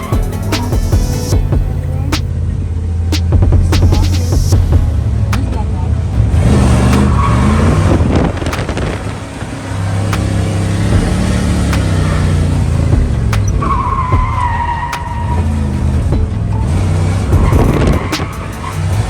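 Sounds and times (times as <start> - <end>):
car engine revving: 0.0 - 19.0
tire squeal: 5.1 - 19.0.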